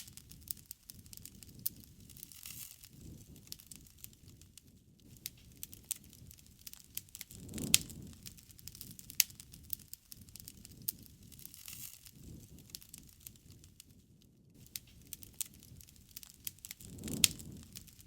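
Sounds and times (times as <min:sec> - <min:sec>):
sharp pops of fire: 0:00.0 - 0:18.0
wood bonfire crackling: 0:00.0 - 0:18.0.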